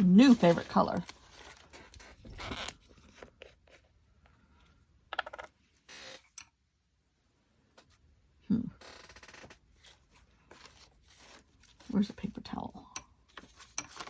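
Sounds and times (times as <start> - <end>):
rustling: 0.0 - 3.9, 8.9 - 12.2.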